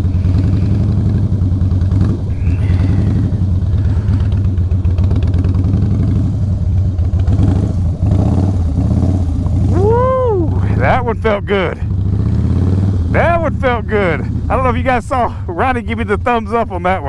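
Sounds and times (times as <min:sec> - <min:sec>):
motorcycle engine at low revs: 0:00.0 - 0:17.0.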